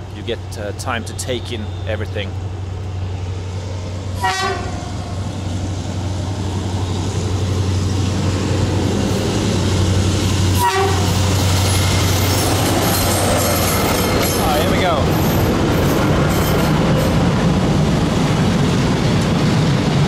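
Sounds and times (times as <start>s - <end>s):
locomotive engine rumble: 0.0s - 20.0s
train horn toots: 4.2s - 4.8s, 10.5s - 11.3s.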